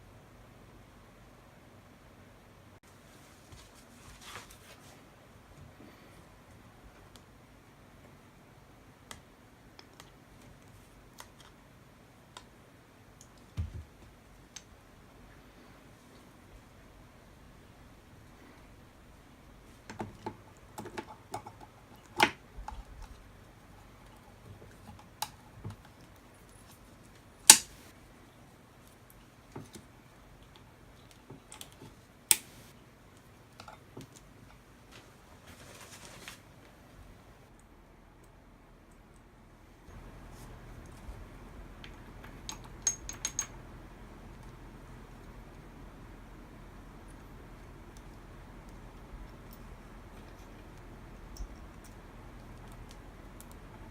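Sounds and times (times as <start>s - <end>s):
short rustle: 2.9s - 5.1s, 34.8s - 36.6s
metallic clicks of tools and parts: 42.2s - 43.6s.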